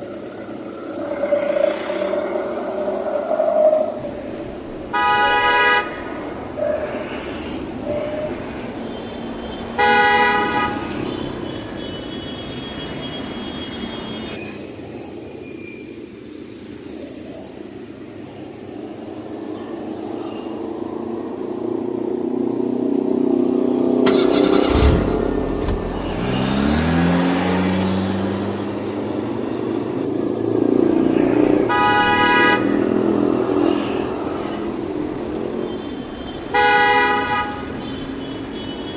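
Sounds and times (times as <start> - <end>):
truck engine revving: 24.0 - 29.5
truck horn toots: 24.1 - 27.6.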